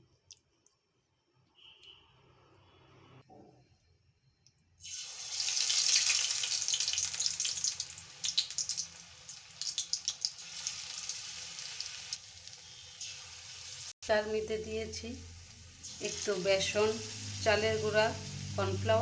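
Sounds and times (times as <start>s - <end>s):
battered food sizzling in hot oil: 4.8s - 19.0s.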